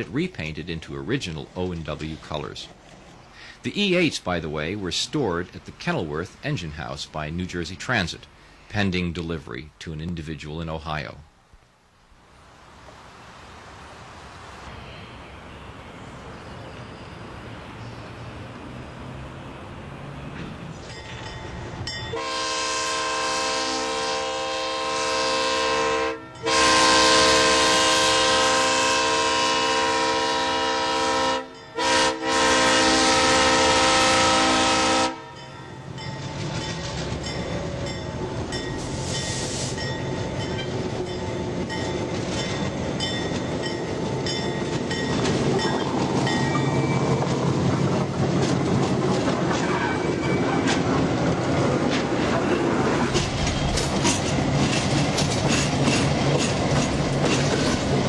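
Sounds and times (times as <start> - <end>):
train engine and wheels rumbling: 0.0 - 58.0
locomotive air horn blasts: 22.1 - 35.5.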